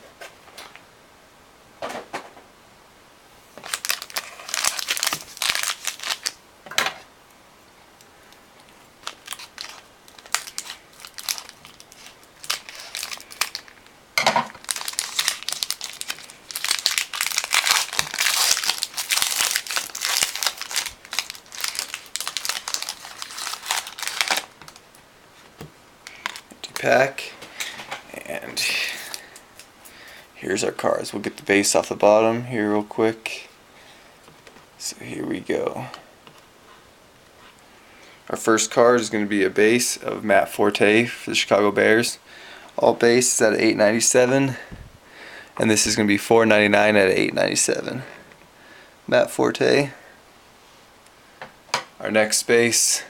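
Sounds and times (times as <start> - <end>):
card wrapper tearing and crinkling: 3.6 - 6.4, 9.0 - 13.8, 14.5 - 24.9.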